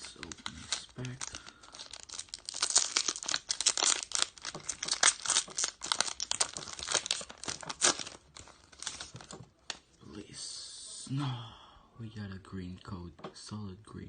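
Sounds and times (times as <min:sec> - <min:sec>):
foil pack tearing and crinkling: 0:00.0 - 0:09.3.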